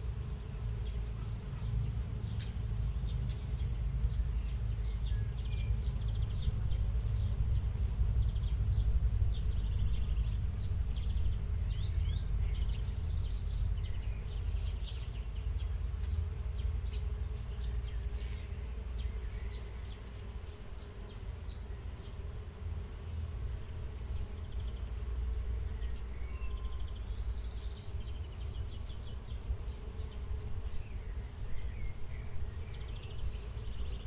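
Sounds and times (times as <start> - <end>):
steady low rumble: 0.0 - 19.5
small birds chirping: 0.4 - 34.0.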